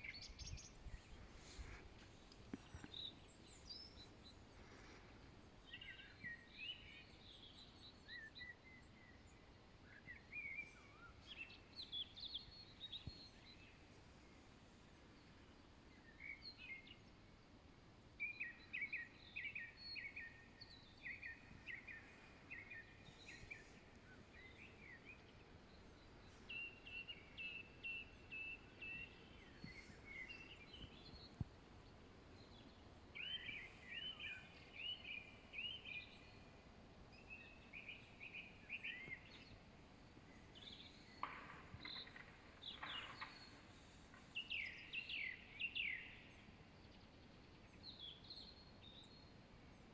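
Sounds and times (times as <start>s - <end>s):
faint background hiss: 0.0s - 49.9s
songbirds trilling: 19.1s - 46.4s.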